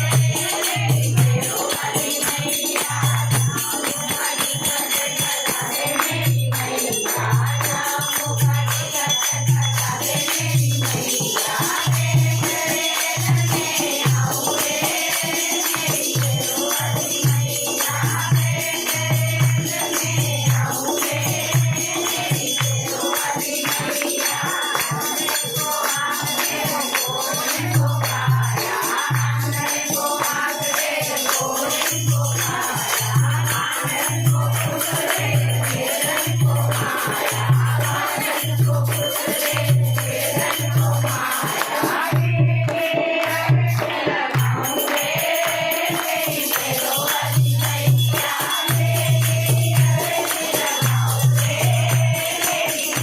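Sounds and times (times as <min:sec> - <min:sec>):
group singing devotional song: 0:00.0 - 0:53.0
rattles and jingling percussion: 0:00.0 - 0:53.0.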